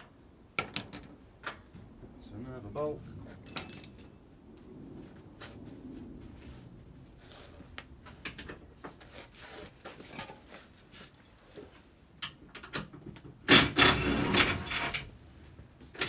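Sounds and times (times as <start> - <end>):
hand tools clinking on bolts: 2.8 - 4.2.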